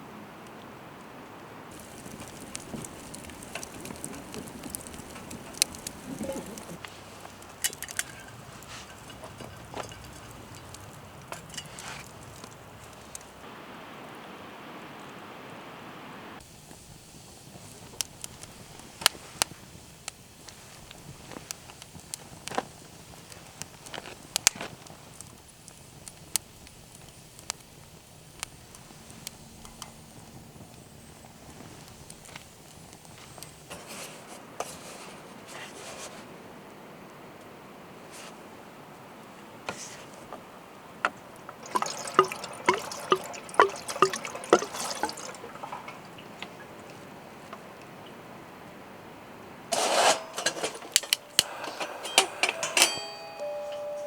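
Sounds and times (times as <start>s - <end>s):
campfire crackling: 1.3s - 35.5s, 40.5s - 52.5s
liquid glugging while poured: 1.7s - 6.8s, 41.6s - 46.9s.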